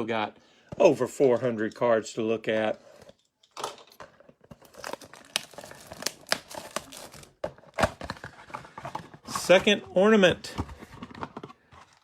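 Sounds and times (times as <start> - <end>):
plastic packaging tearing and crinkling: 4.5 - 8.4.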